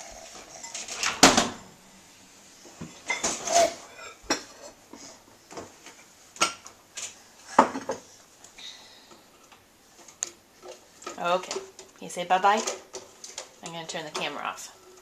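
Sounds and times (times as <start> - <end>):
dishes and silverware clinking: 0.0 - 1.3, 3.0 - 4.8.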